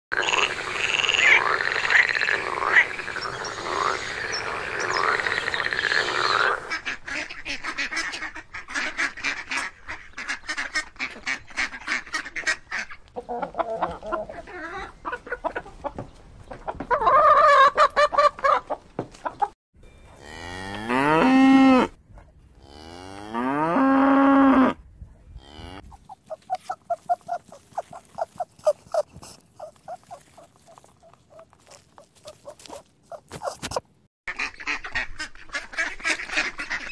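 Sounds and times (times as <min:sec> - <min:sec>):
cow mooing: 0:20.1 - 0:22.0, 0:22.6 - 0:24.8, 0:25.4 - 0:25.9.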